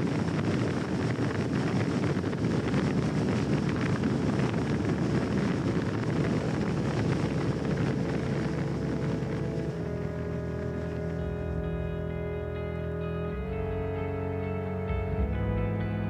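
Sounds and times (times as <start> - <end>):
wind noise on microphone: 0.0 - 16.0
truck engine running: 4.4 - 16.0.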